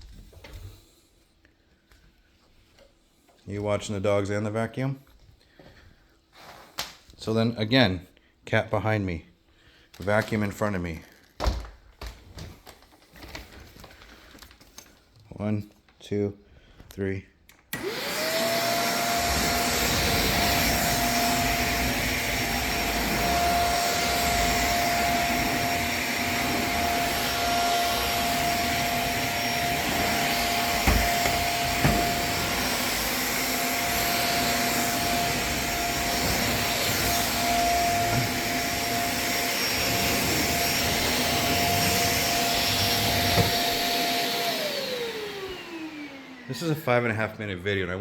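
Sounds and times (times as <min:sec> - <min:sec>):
vacuum cleaner running: 0:17.7 - 0:47.1.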